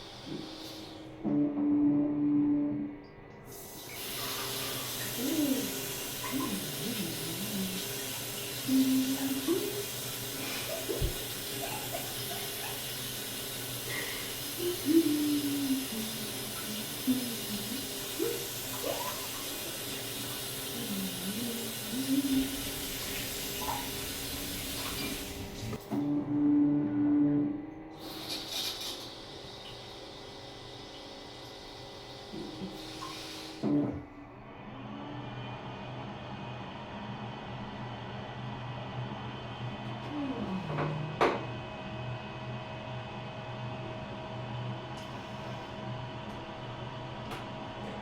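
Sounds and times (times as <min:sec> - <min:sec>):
running water hiss: 0:03.5 - 0:25.8, 0:28.0 - 0:33.7
faint voice-like sounds: 0:05.1 - 0:08.0, 0:14.5 - 0:19.8, 0:20.6 - 0:22.9.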